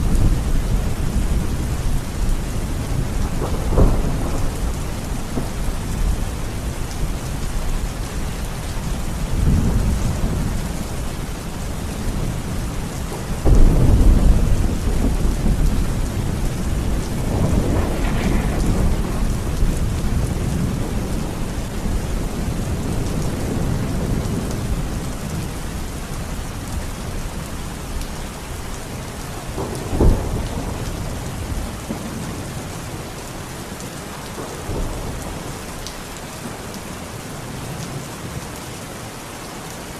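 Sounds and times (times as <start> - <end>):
rolling thunder: 0.0 - 27.5, 29.4 - 33.0
heavy rain: 0.0 - 39.9
sharp crack of thunder: 2.6 - 6.6, 13.4 - 25.4, 29.5 - 32.6.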